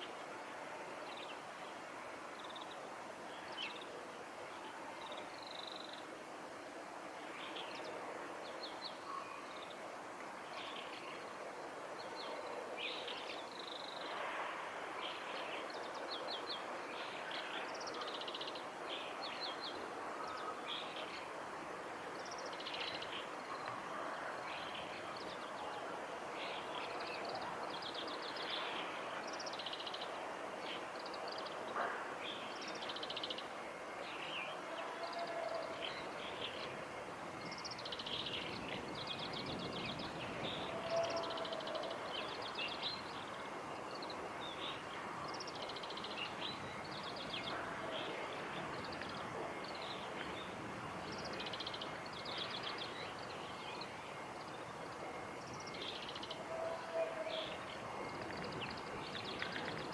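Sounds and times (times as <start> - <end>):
steady background noise: 0.0 - 59.9.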